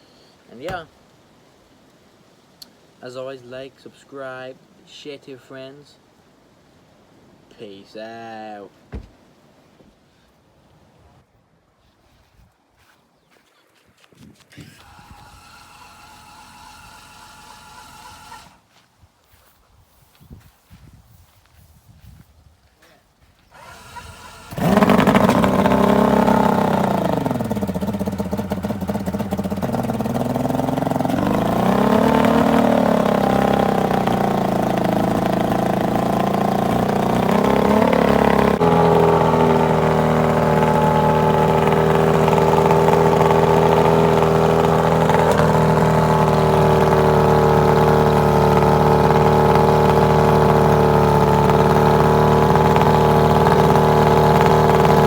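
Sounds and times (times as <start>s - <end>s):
boat motor running: 14.7s - 18.6s, 23.5s - 55.0s.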